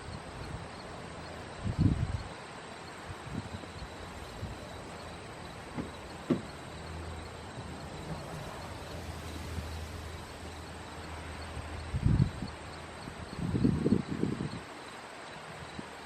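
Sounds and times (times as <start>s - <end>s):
heavy thump: 5.7s - 6.6s
light knocks: 5.7s - 6.7s.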